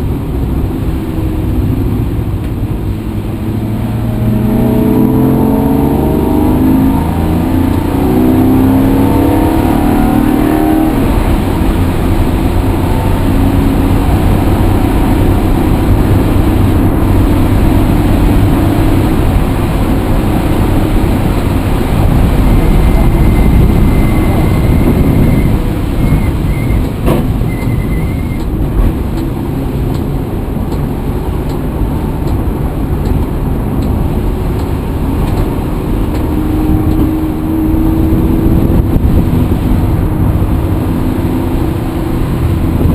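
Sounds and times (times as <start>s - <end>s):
vehicle engine running: 8.9s - 42.9s.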